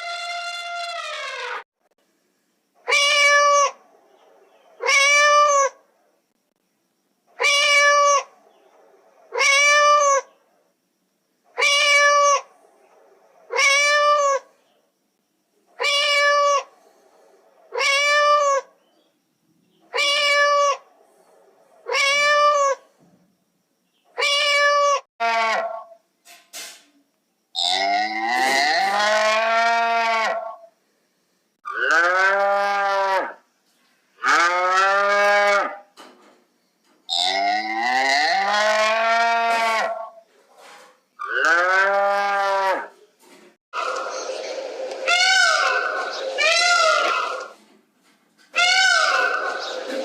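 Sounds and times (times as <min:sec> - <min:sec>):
cat meowing: 0:11.6 - 0:12.4, 0:19.9 - 0:20.8, 0:24.2 - 0:25.4.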